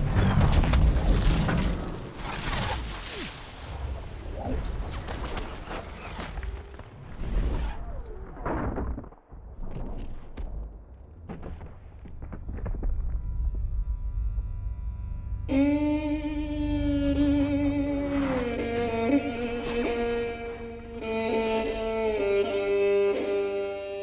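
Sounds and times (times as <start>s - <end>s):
sharp cracks and impacts: 0.0s - 3.7s
low rumble: 9.4s - 21.1s.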